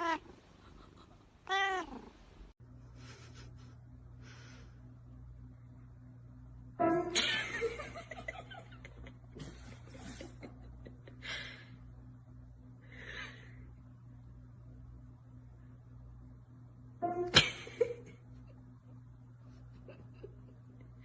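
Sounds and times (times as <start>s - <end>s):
low steady hum: 0.0s - 21.0s
person laughing: 7.2s - 11.6s, 17.3s - 18.6s.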